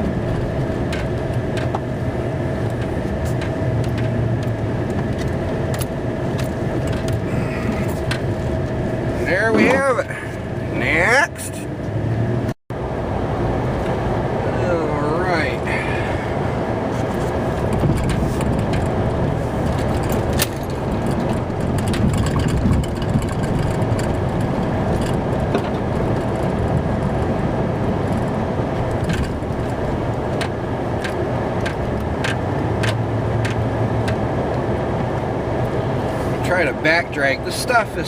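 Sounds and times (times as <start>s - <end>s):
truck engine running: 0.0s - 38.0s
sharp clicks and knocks: 2.6s - 8.4s, 17.6s - 27.3s, 28.0s - 35.2s.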